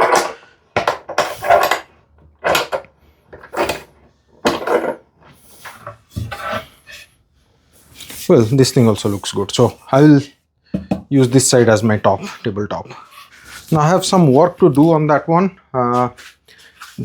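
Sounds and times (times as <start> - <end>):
wooden knocks and scrapes: 0.0 - 7.1.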